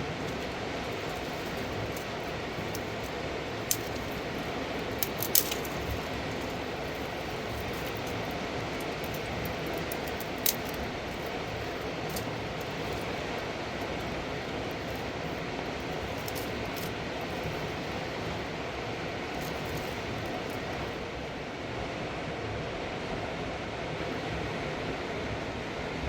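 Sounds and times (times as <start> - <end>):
river rushing: 0.0 - 22.3
faint high ticks: 0.2 - 18.4.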